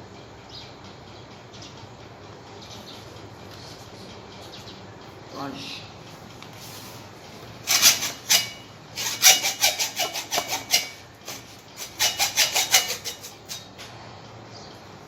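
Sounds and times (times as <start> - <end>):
hand scraping corroded metal: 7.6 - 13.9.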